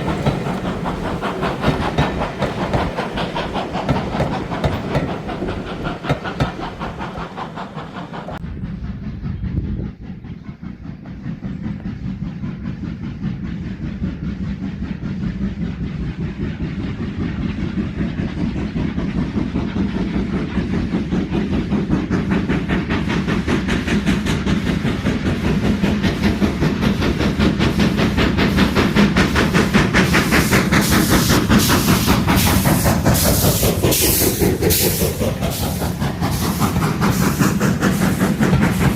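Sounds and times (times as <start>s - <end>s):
rail clatter: 0.0s - 8.4s, 27.8s - 38.9s
steam hiss: 0.0s - 8.4s, 24.3s - 38.9s
steam locomotive exhaust beats: 0.0s - 38.9s.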